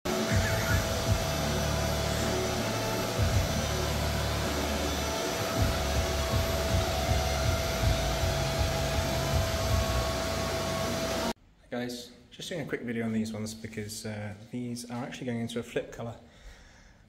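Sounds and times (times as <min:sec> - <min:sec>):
extraction fan rushing: 0:00.1 - 0:11.4.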